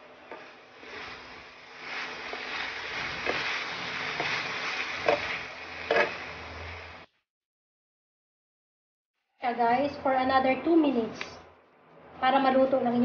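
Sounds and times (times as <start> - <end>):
food sizzling in a pan: 0.0 - 7.1
utensils knocking and scraping pan: 1.9 - 6.2.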